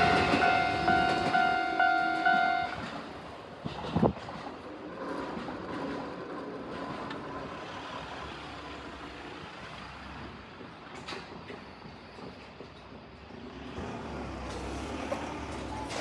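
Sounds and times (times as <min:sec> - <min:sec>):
train horn: 0:00.0 - 0:03.0
electric train running past: 0:00.0 - 0:16.0.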